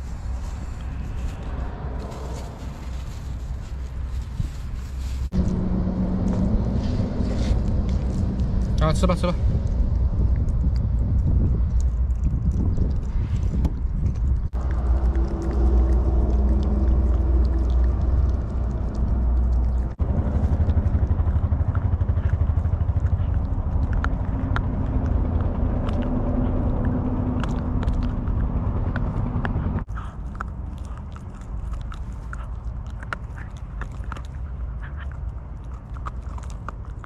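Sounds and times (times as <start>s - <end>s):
low rumble: 0.0s - 37.0s
dog chewing food: 6.2s - 37.0s.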